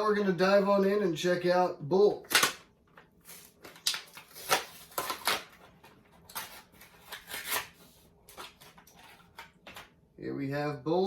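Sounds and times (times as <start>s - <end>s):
plastic and card packaging crackling: 2.2s - 10.0s.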